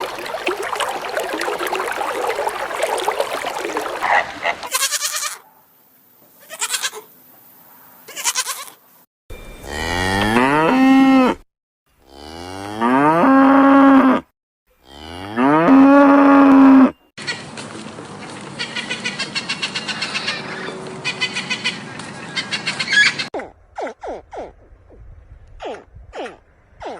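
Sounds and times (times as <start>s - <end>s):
cow mooing: 9.6s - 11.4s, 12.0s - 14.2s, 14.8s - 17.0s.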